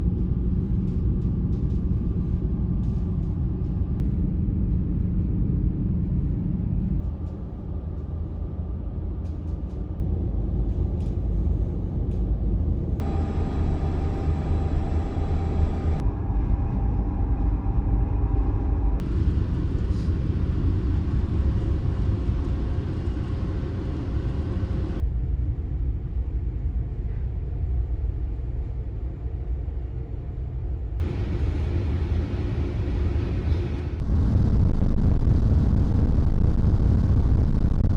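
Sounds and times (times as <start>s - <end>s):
machinery hum: 0.0s - 37.9s
ship engines droning: 9.0s - 25.0s, 31.0s - 37.9s.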